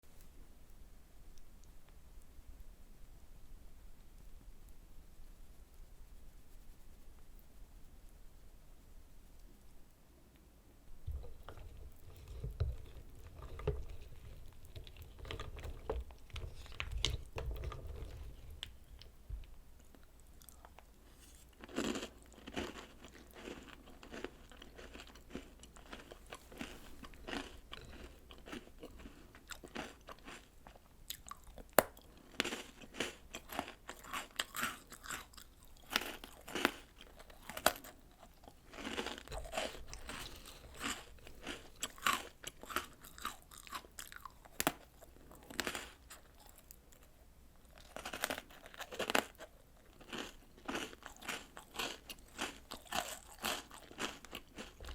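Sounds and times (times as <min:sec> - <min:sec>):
crunching and chewing food: 0:10.9 - 0:54.9.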